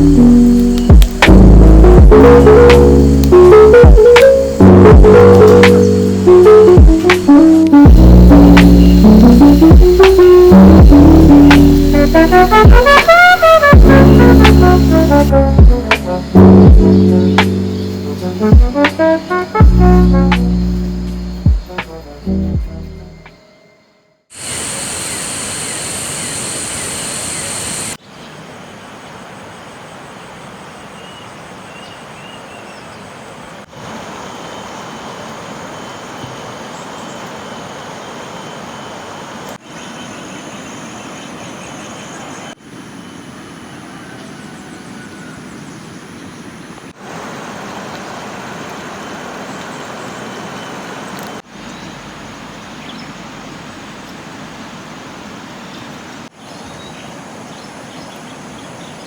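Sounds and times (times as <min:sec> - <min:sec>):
water rushing: 0:33.4 - 0:43.8, 0:46.6 - 0:59.0.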